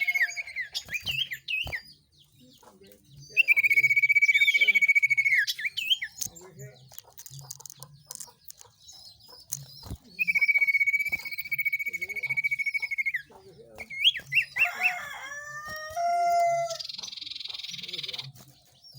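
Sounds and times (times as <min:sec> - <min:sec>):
high trilled bird call: 0:00.0 - 0:01.7, 0:10.2 - 0:18.2
falling chirps: 0:00.0 - 0:02.2
faint chirps and clicks: 0:00.0 - 0:18.9.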